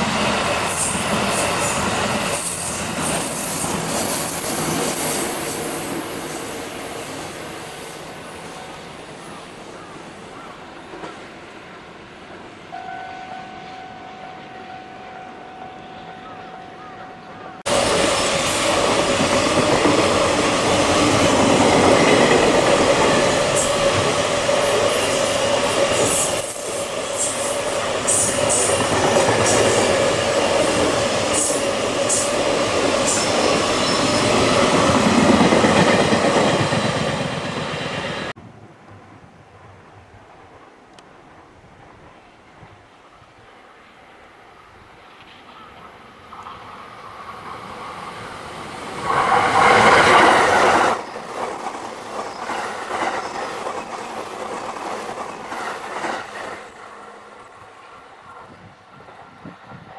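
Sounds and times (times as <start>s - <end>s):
electric train approaching: 0.0s - 40.6s, 43.8s - 59.9s
freight train passing: 0.0s - 59.9s
high wheel squeal: 50.9s - 59.8s.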